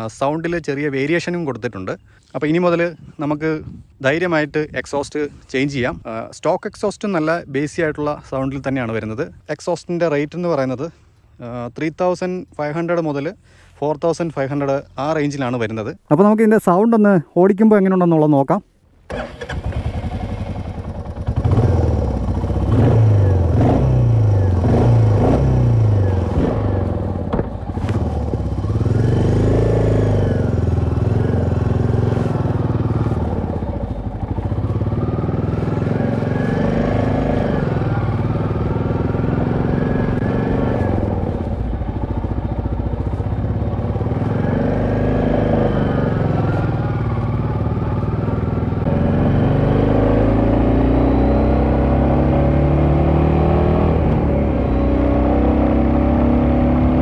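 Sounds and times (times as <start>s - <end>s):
motorcycle engine accelerating: 19.1s - 57.0s.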